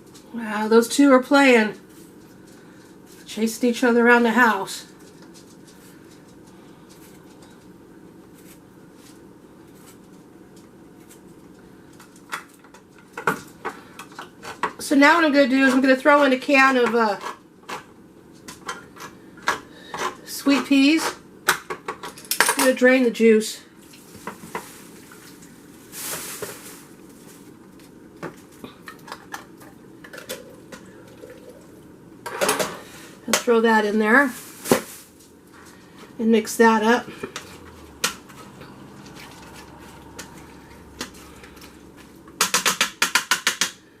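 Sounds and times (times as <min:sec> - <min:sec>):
steady low hum: 0:00.0 - 0:42.4
liquid pouring: 0:30.4 - 0:31.8.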